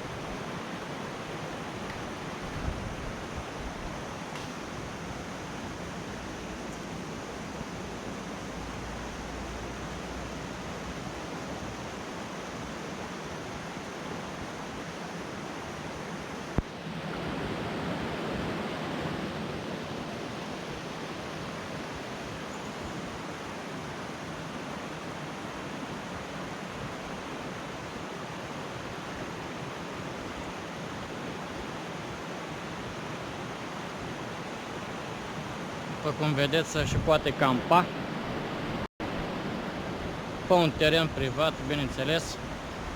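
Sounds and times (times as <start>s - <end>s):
river water rushing: 0.0s - 42.9s
sharp click: 4.3s - 4.6s.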